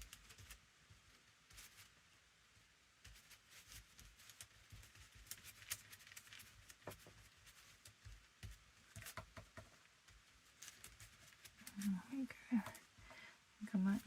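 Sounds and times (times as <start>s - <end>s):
brush on paper: 0.0s - 14.0s
paper taps and rustles: 3.0s - 11.9s.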